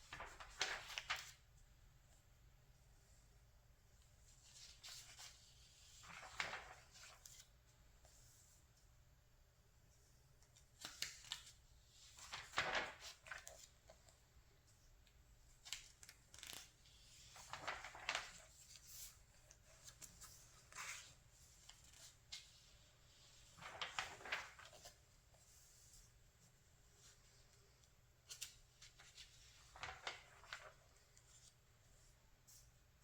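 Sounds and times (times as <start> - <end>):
magazine pages turning: 0.1 - 1.4, 4.5 - 7.5, 10.6 - 13.9, 15.6 - 26.0, 28.2 - 31.6.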